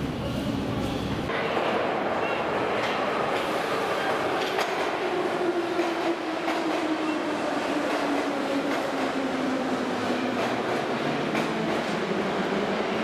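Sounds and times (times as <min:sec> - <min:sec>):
metro train rumble: 0:00.0 - 0:13.0.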